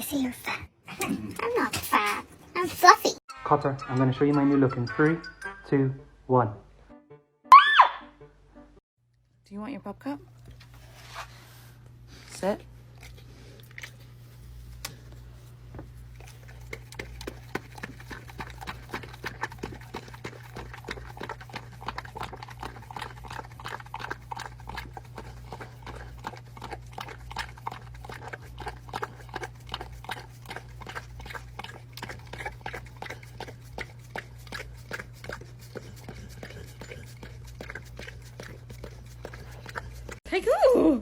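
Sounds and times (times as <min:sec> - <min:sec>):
dog lapping wet clicks: 0:12.9 - 0:14.1, 0:15.8 - 0:40.2.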